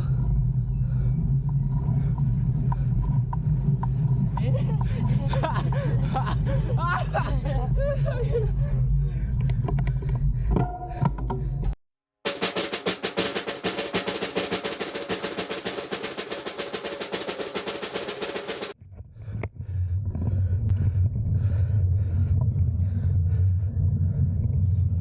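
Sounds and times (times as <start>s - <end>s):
steady low rumble: 0.0s - 11.8s, 18.8s - 25.0s
snare drum roll: 12.3s - 18.8s.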